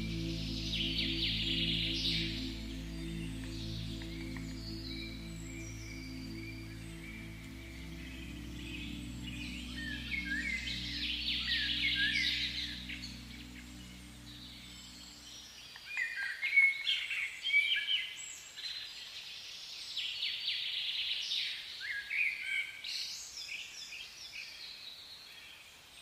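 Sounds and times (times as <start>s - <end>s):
low steady musical tone: 0.0s - 16.2s
songbirds singing: 0.0s - 16.5s.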